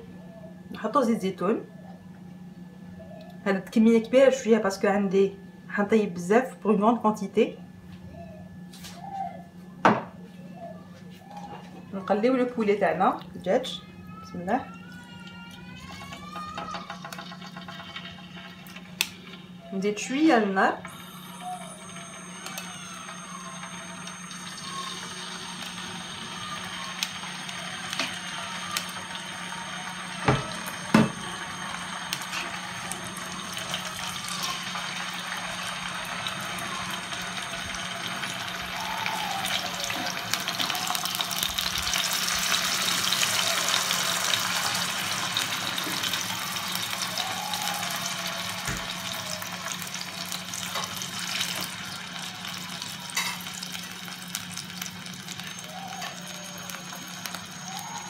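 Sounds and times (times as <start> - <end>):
chicken frying in oil: 15.3 - 58.0.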